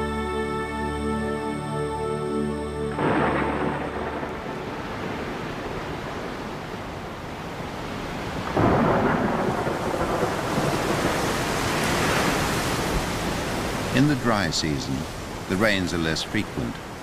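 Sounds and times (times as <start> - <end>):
heavy rain: 2.4 - 17.0
thunder rumbling: 2.9 - 15.3.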